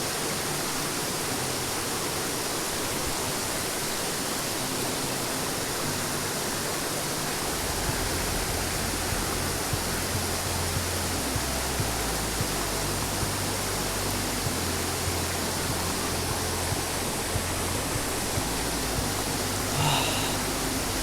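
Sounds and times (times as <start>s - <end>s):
steady rushing noise: 0.0s - 21.0s
low rumble: 7.5s - 21.0s.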